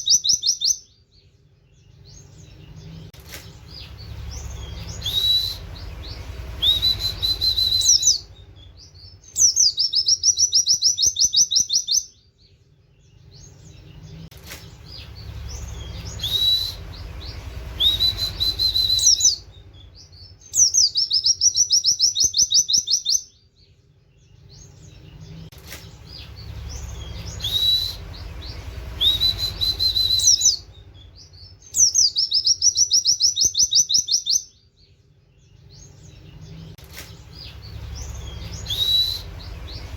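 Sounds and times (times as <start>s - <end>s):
bird whistling and trilling: 0.0s - 1.0s, 3.7s - 12.2s, 14.5s - 23.4s, 25.7s - 34.6s, 37.4s - 39.9s
low hum: 1.8s - 10.3s, 13.4s - 20.5s, 24.7s - 31.7s, 35.9s - 39.9s.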